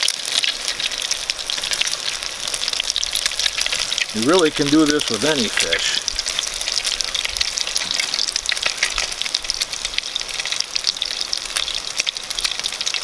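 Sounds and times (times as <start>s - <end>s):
fish cakes sizzling in oil: 0.0s - 13.0s.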